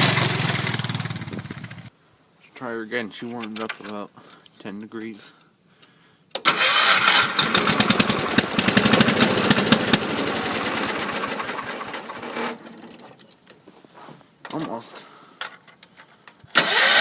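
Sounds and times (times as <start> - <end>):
tractor engine cranking on starter: 6.3 - 13.0, 16.3 - 17.0.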